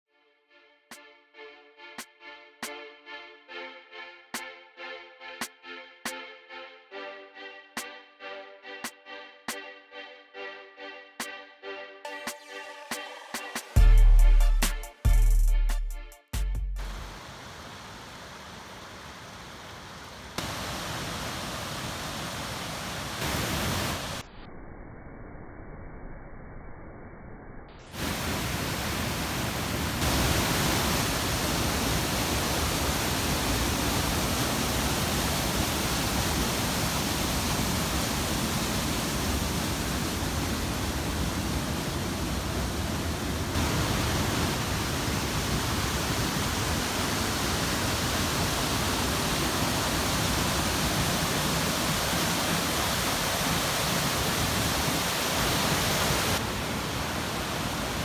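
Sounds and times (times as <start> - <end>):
waterfall roaring: 16.8 - 24.2, 27.9 - 58.0.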